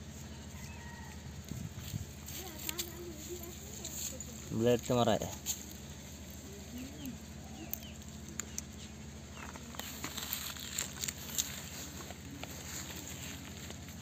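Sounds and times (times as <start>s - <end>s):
low steady hum: 0.0s - 14.0s
faint bird chirps: 6.5s - 10.0s.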